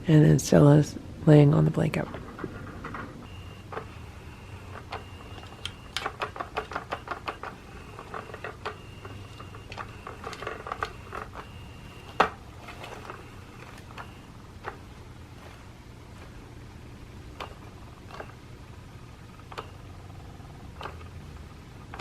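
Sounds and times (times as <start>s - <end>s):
toy motor whining: 3.3s - 14.3s.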